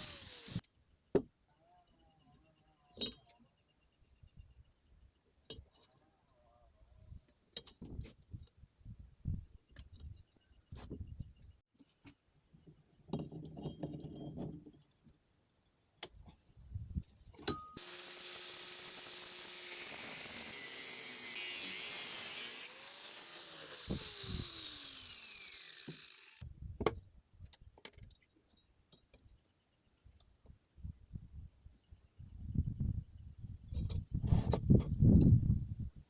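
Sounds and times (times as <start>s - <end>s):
angle grinder running: 0.0s - 0.6s, 17.8s - 26.4s.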